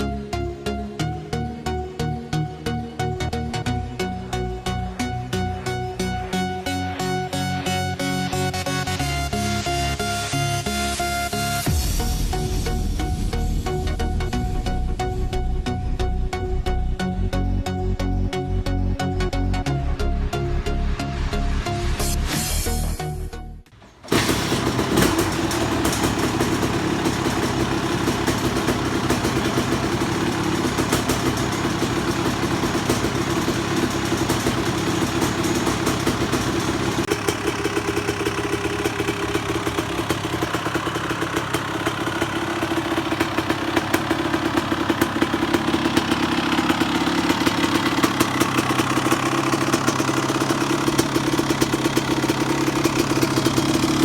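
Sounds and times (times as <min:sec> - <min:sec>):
two-stroke engine idling: 0:11.3 - 0:12.3, 0:23.8 - 0:54.0.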